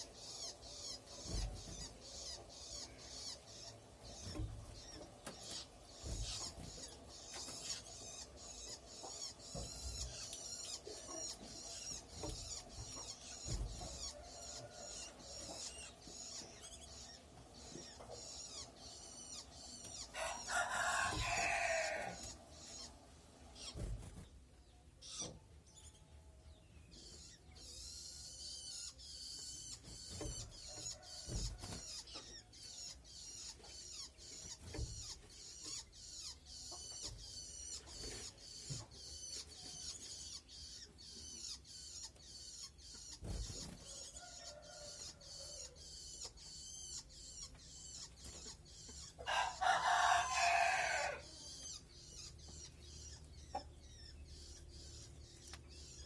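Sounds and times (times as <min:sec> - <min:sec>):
nestling begging chirps: 0:00.0 - 0:22.9
rooster crowing: 0:20.1 - 0:22.2, 0:49.2 - 0:51.4.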